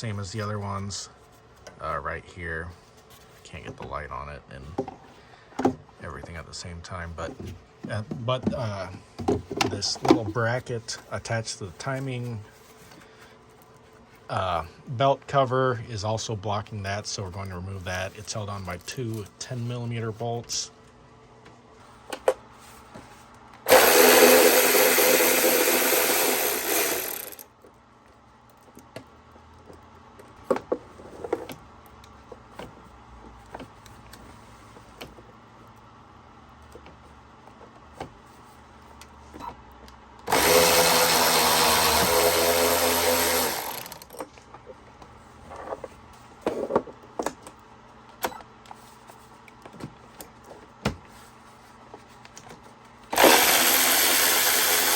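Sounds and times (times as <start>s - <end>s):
power tool spinning bolts: 23.7s - 27.5s, 40.3s - 44.2s, 53.1s - 54.9s.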